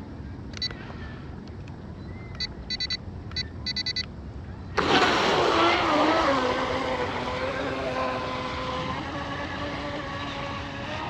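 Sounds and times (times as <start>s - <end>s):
model boat motor whine: 4.8s - 11.0s
rush of spray: 4.8s - 11.0s.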